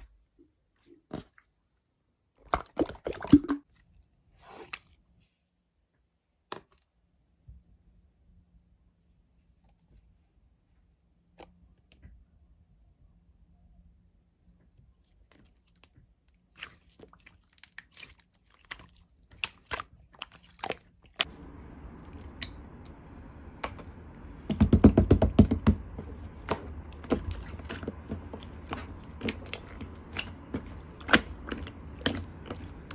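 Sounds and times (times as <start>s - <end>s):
slime clicking and popping: 24.5s - 32.9s.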